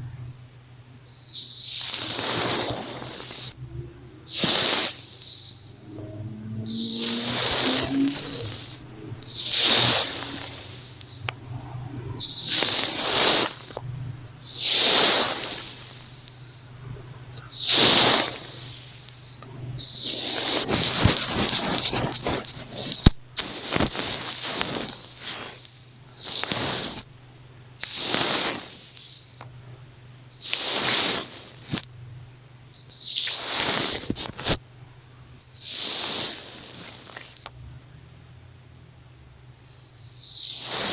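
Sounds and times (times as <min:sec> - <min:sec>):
brush sweeping over microphone: 0:01.8 - 0:03.6, 0:04.3 - 0:11.3, 0:12.2 - 0:13.8, 0:17.7 - 0:25.6.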